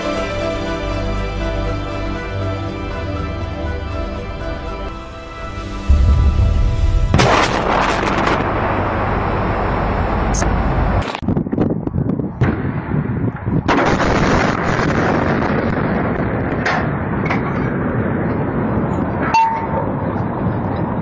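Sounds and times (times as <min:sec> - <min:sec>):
rolling rumble: 0:03.9 - 0:21.0
distant explosion blast: 0:05.9 - 0:10.6.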